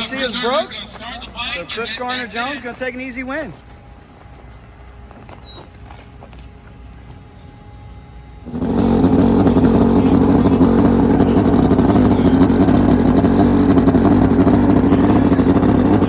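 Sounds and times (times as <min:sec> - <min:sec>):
drag bike engine high revs: 0:08.2 - 0:16.0.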